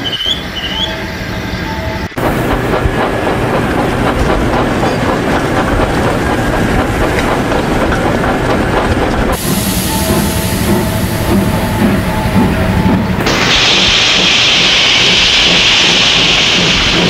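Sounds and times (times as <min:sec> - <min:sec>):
train rumbling: 0:00.0 - 0:17.0
wheels clacking over rail joints: 0:02.0 - 0:13.3.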